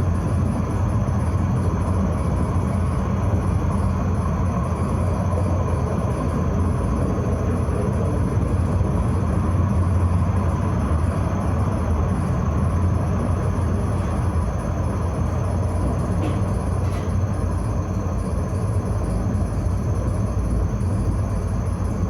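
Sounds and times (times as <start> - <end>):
tram wheels rumbling: 13.1 - 18.4.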